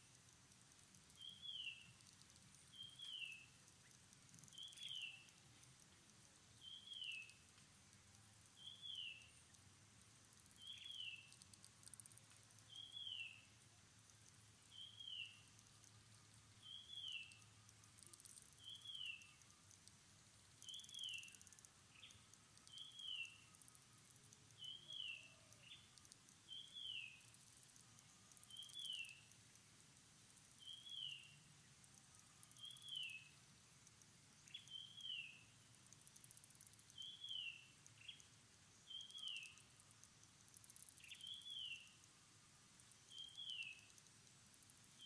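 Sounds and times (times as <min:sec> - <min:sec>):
insects hissing: 0:00.0 - 0:45.0.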